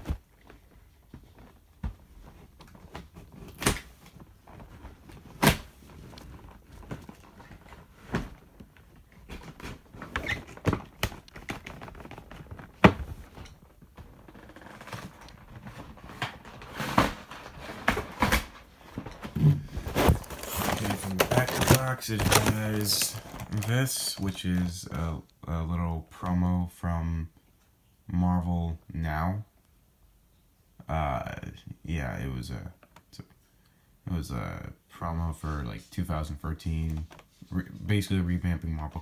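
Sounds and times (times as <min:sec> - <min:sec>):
cardboard packaging rustling: 0:00.0 - 0:24.9.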